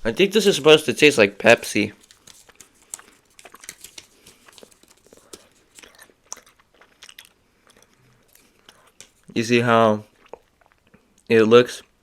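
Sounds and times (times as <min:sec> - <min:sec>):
wrapper crinkling and tearing: 0:01.9 - 0:06.7.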